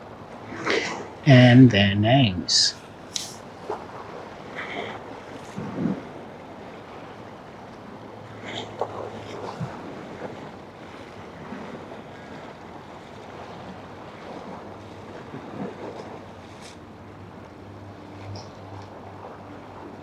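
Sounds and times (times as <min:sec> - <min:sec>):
boat engine drone: 0:00.0 - 0:20.0.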